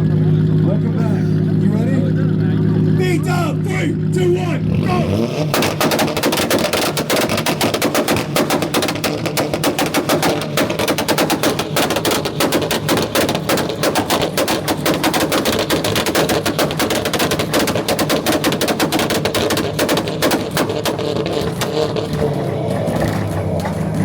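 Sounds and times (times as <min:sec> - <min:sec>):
car engine on rev limiter: 0:00.0 - 0:24.0
exhaust popping and banging: 0:00.0 - 0:24.0.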